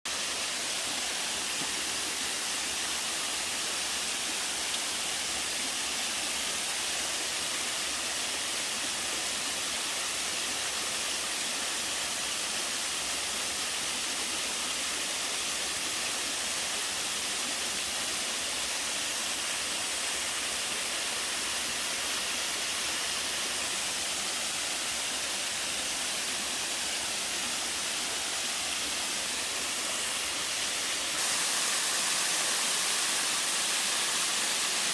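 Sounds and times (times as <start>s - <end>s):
waterfall rushing: 17.8s - 34.9s.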